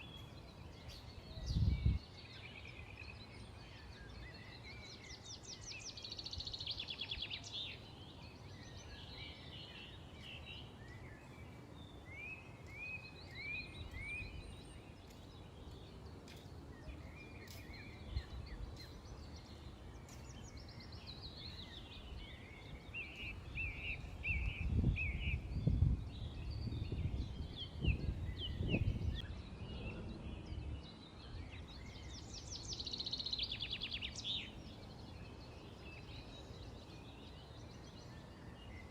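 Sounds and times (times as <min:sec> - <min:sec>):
outdoor background hiss: 0:00.0 - 0:38.9
small birds chirping and trilling: 0:00.0 - 0:38.9.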